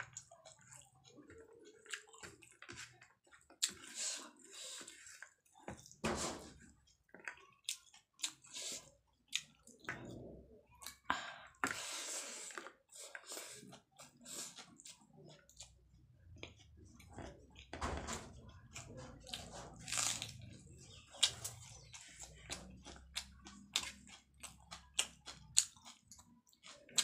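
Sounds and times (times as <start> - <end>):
person chewing with mouth clicks: 20.9 - 27.0.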